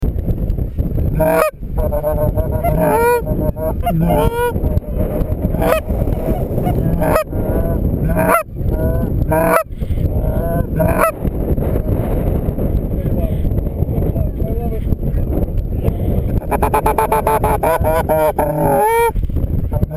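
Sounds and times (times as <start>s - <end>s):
wind on microphone: 0.0s - 19.9s
geese honking: 1.2s - 8.4s, 9.3s - 9.6s, 10.8s - 11.2s, 16.4s - 19.1s.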